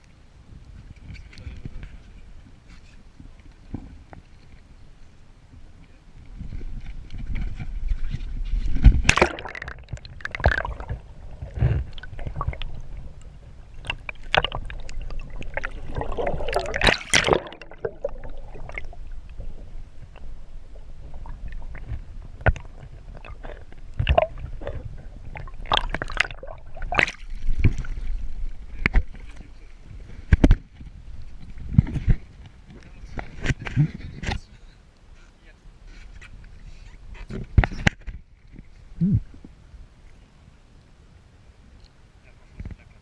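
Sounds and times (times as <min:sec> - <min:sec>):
water sloshing and splashing: 0:06.5 - 0:32.4.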